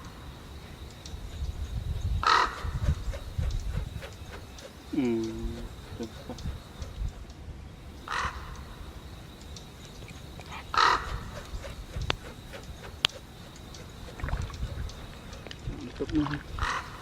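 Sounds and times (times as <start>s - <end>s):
sharp clicks: 0.0s - 7.4s, 8.0s - 16.9s
bird squawking: 1.3s - 7.1s, 8.0s - 9.0s, 10.0s - 15.5s, 16.5s - 17.0s.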